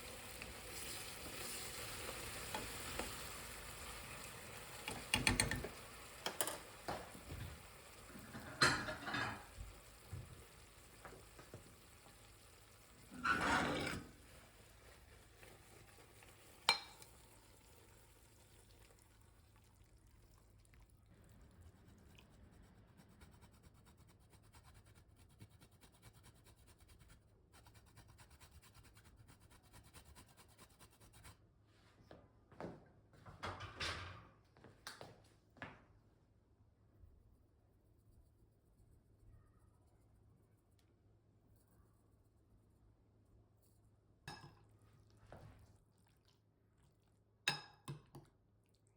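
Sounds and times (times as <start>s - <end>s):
dishes clinking: 5.0s - 7.1s, 8.1s - 9.6s, 13.1s - 14.2s, 16.6s - 17.1s
utensil scraping in a pan: 8.1s - 9.6s, 13.0s - 17.1s.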